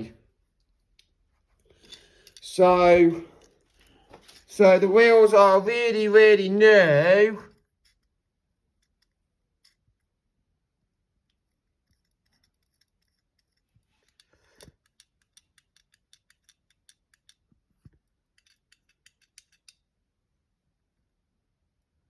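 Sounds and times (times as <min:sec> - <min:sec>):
toy truck clicks and taps: 0:11.9 - 0:19.8.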